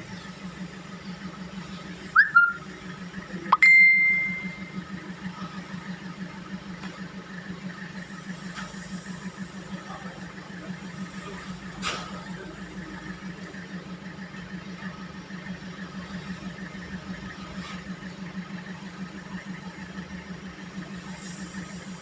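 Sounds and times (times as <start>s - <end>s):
pulsing low machine hum: 0.0s - 21.0s
ringing metallic ding: 3.6s - 4.7s.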